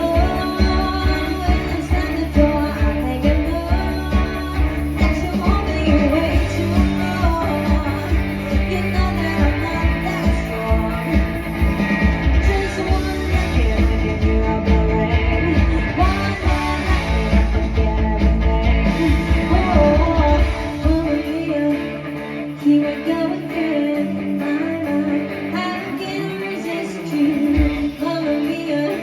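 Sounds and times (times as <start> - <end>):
low bass: 0.0 - 21.2
guitar: 0.0 - 29.0
live band playing: 0.0 - 29.0
person singing: 0.0 - 29.0.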